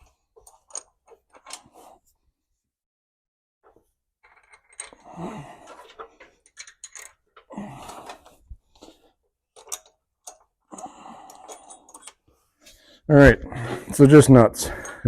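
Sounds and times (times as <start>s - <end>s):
steel nuts clinking and rattling: 0.4s - 1.7s, 4.2s - 12.3s.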